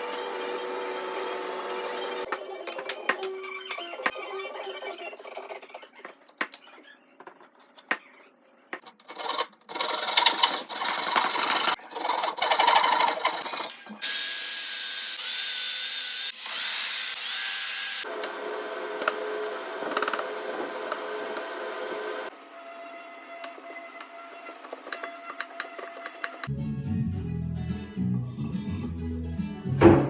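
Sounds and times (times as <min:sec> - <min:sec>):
rough scraping on wood: 0:08.8 - 0:13.7
small power tool whirring: 0:12.6 - 0:22.4.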